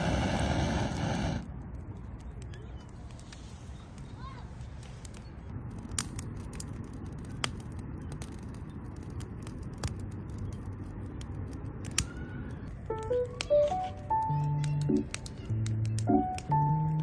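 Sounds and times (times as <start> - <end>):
steady low rumble: 0.0 - 4.0
sharp clicks and snaps: 1.4 - 17.0
music with stepped notes: 12.9 - 17.0.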